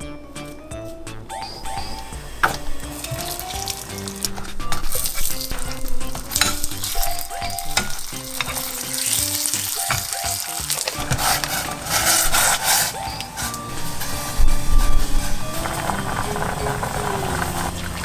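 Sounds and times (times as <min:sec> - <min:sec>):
background music: 0:00.0 - 0:18.0
food sizzling in oil: 0:01.5 - 0:18.0.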